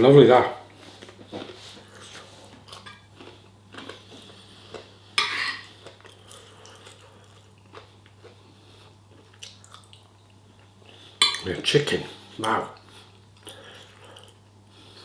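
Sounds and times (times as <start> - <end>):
soft chewing: 0.7 - 11.6, 12.8 - 15.0
cutlery clinking on a plate: 5.2 - 5.7, 11.2 - 11.5.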